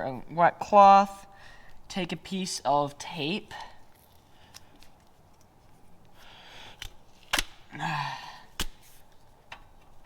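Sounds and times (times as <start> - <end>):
tape ripping off roll: 6.8 - 7.7.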